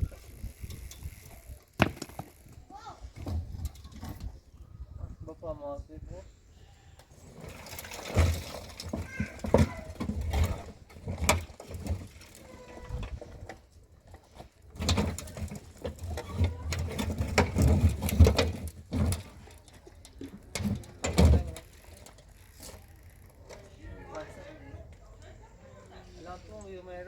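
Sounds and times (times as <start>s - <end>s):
hard objects knocking and clattering: 1.8s - 2.4s, 7.5s - 12.1s.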